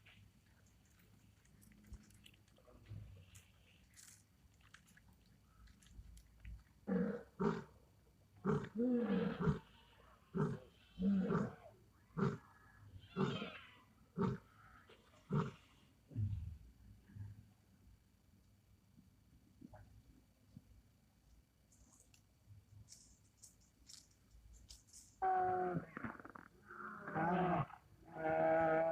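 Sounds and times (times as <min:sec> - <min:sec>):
lion roaring: 0:06.9 - 0:07.7, 0:08.4 - 0:09.7, 0:10.3 - 0:11.6.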